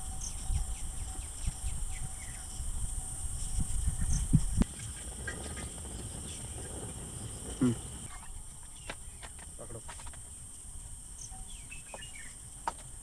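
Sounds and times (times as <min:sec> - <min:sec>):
insects chirring: 0:00.0 - 0:13.0
low animal call: 0:04.6 - 0:08.2.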